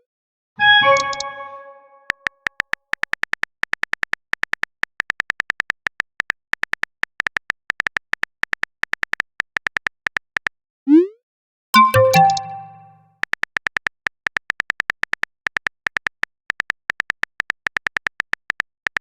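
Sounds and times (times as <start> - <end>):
short high typing beeps: 0.6 - 2.0, 11.8 - 13.0.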